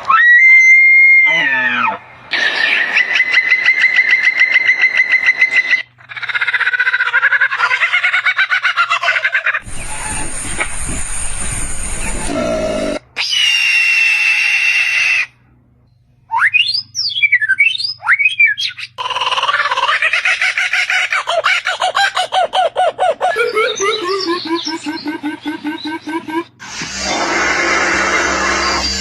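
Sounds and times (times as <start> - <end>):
high bird screech: 2.3 - 5.9, 9.6 - 15.3, 26.6 - 29.0
bird whistles swooping: 2.4 - 5.9.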